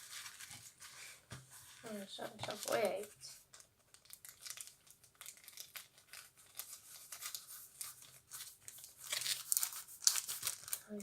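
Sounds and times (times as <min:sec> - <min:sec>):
crinkly packaging rustling: 0:00.0 - 0:11.0.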